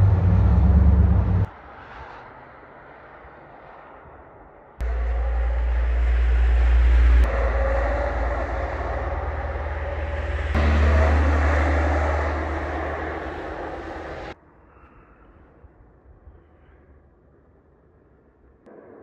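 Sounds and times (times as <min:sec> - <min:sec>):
trucks driving past: 0:00.0 - 0:04.2, 0:04.8 - 0:14.4.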